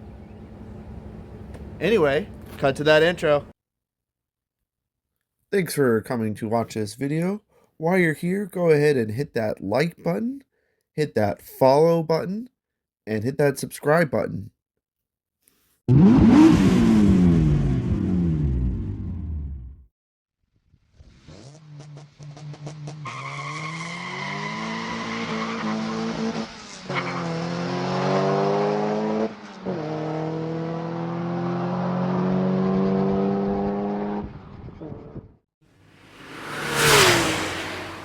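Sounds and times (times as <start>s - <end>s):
car engine accelerating through gears: 15.9s - 19.7s, 21.2s - 35.3s, 36.0s - 38.0s
loud whoosh: 35.9s - 38.0s.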